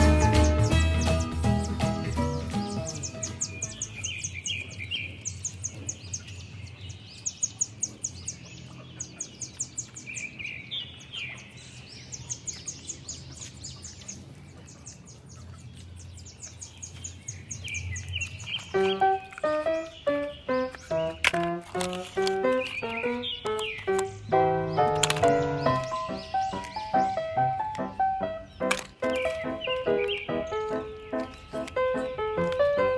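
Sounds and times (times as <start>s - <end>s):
birds chirping: 0.0s - 32.9s.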